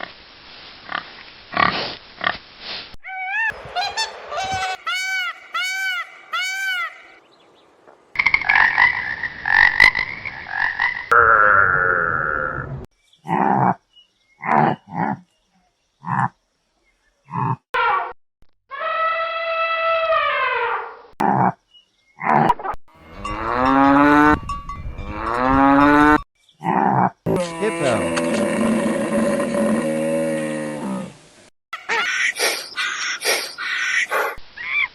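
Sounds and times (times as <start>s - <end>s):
animal calls: 3.0s - 7.2s, 31.8s - 34.9s
cow mooing: 23.0s - 24.4s, 25.0s - 26.2s, 27.3s - 31.2s.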